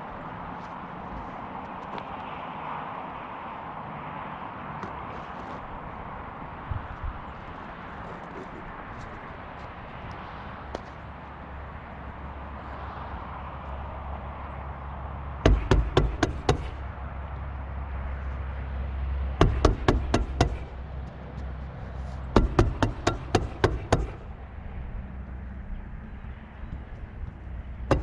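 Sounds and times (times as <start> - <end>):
hammer blows: 15.4 - 16.9, 19.4 - 20.8, 22.3 - 24.4, 27.8 - 28.0.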